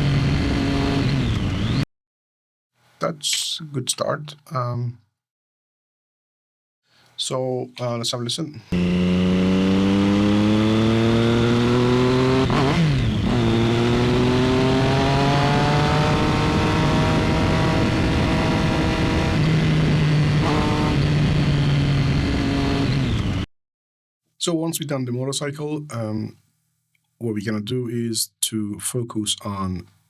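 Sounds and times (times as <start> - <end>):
motorcycle engine accelerating: 0.0 - 1.8, 8.8 - 23.5.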